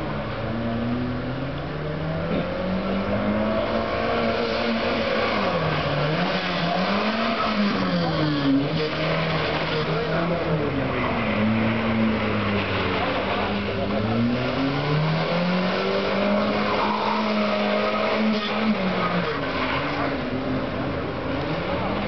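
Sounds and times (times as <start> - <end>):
car engine revving: 0.0 - 22.0
tyre squeal: 16.3 - 20.2.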